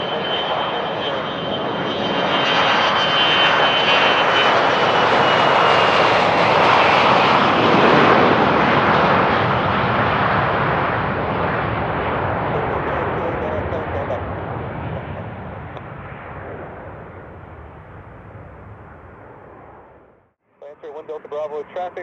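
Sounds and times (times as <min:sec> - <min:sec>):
high jet whine: 0:00.0 - 0:22.0
jet rush passing: 0:06.1 - 0:20.2.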